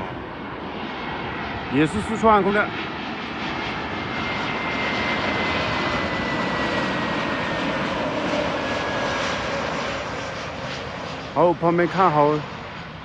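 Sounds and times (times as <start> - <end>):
jet airliner engines whining: 0.0 - 13.0.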